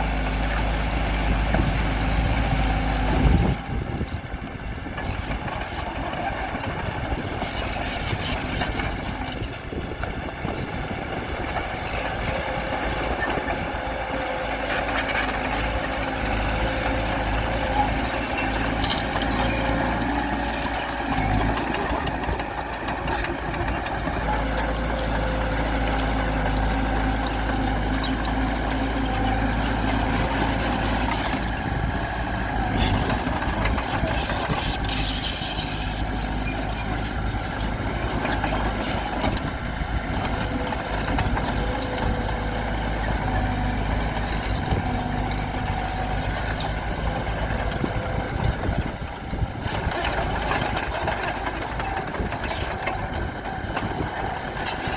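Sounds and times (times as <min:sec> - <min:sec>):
bulldozer diesel engine running: 0:00.0 - 0:54.9.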